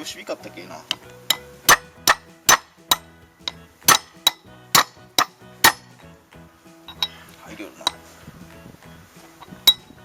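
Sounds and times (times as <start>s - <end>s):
hammer striking metal: 1.3s - 6.0s.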